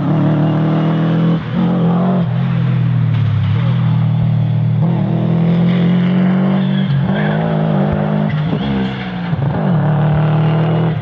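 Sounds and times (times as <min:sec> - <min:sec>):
rally car engine at high revs: 0:00.0 - 0:11.0.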